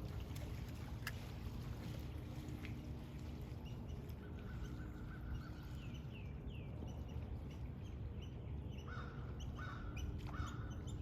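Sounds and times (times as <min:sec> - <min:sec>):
steady low rumble: 0:00.0 - 0:11.0
birds chirping: 0:03.0 - 0:11.0.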